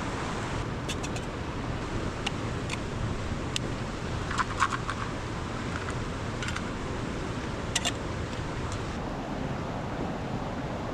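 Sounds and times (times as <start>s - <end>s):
low rumbling noise: 0.0s - 10.9s
sharp clicks and crackles: 4.3s - 5.1s.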